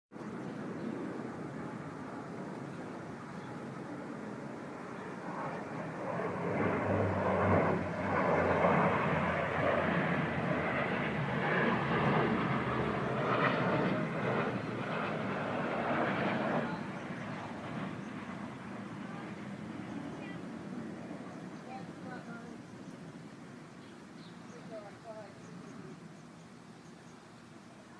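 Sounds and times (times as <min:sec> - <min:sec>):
engine passing by: 0:05.5 - 0:13.6.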